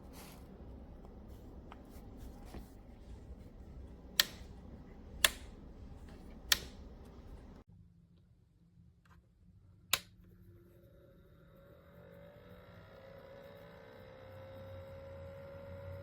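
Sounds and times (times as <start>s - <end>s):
low background noise: 0.0s - 9.2s
sharp clicks: 3.8s - 7.6s.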